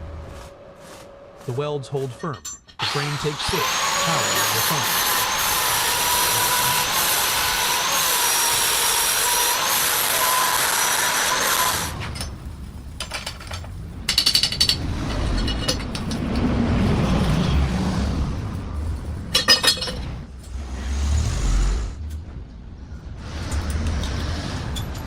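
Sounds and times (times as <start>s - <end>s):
low rumble: 0.0s - 1.5s, 12.0s - 25.0s
metal parts clanking: 2.2s - 3.1s, 11.8s - 17.7s, 18.5s - 20.6s, 23.4s - 25.0s
power tool whining: 2.8s - 13.4s.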